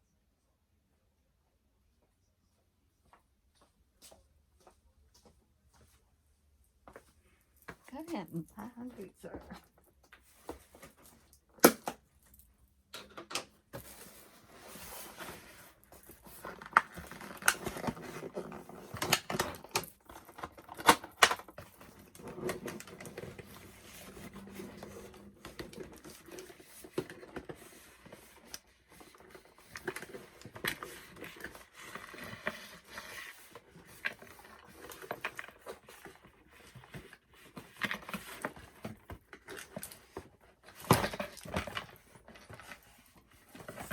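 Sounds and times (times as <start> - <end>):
box rustling: 13.8 - 43.9.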